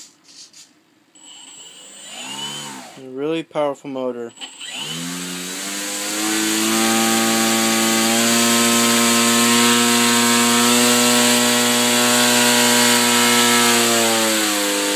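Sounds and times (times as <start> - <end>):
model airplane motor buzzing: 4.6 - 14.9.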